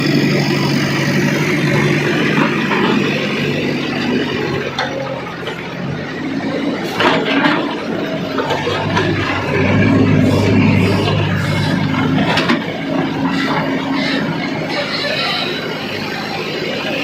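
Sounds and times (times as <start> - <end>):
heavy diesel engine running: 0.0 - 17.0
knocks and clatter: 7.0 - 10.2, 10.8 - 13.8.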